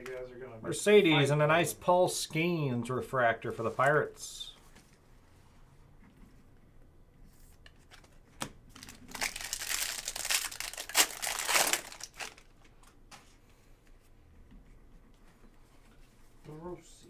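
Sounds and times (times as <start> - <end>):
wrapper torn and crinkled: 8.7 - 12.6.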